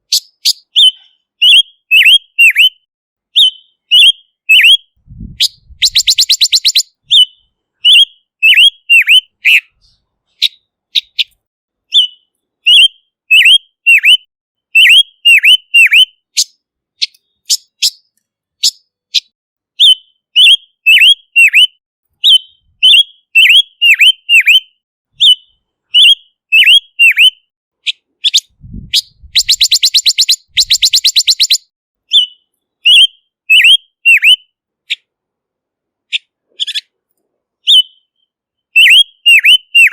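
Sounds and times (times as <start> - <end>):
bird whistling notes: 0.0 - 2.8, 3.4 - 27.4, 28.2 - 34.4, 37.7 - 39.9
bird rattling trill: 5.6 - 6.9, 29.0 - 31.6.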